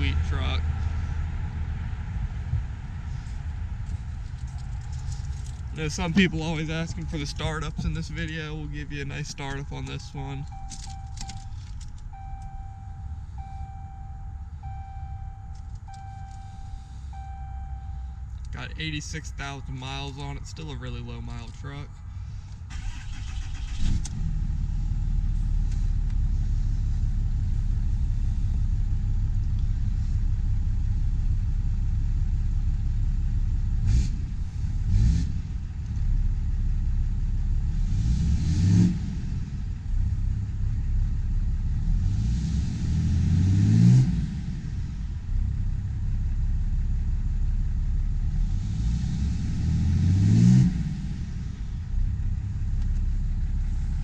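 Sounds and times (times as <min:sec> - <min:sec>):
diesel engine starting and revving: 0:00.0 - 0:54.0.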